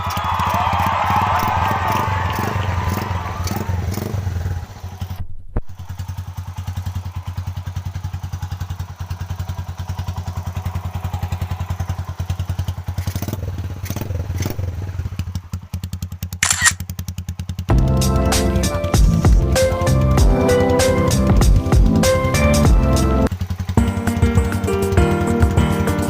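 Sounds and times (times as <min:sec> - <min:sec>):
motorcycle idling: 0:00.0 - 0:26.0.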